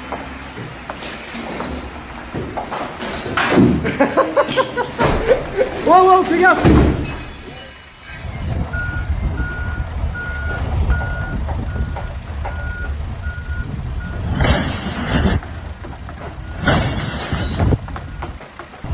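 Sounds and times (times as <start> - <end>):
engine rumble: 0.0 - 18.9
reversing alarm beeping: 7.0 - 14.4.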